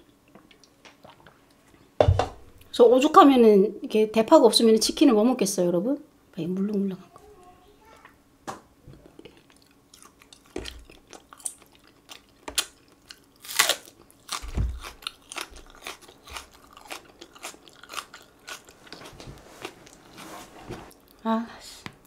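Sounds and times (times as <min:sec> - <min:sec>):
crunchy chewing: 0:08.9 - 0:21.2.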